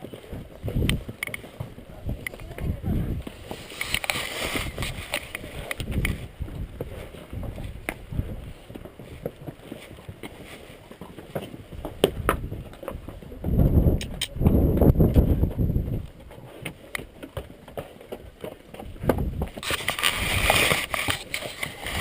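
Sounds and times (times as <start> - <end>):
mule hooves on rocky trail: 0.0 - 22.0
strong wind buffeting microphone: 0.3 - 1.1, 1.9 - 8.6, 12.0 - 16.2, 18.9 - 22.0.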